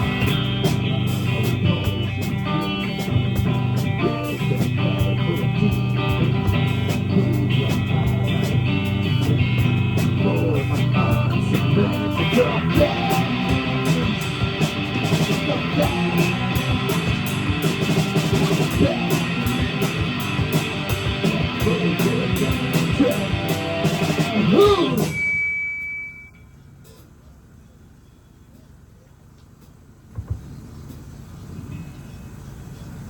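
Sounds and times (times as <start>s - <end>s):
rock band playing: 0.0s - 25.5s.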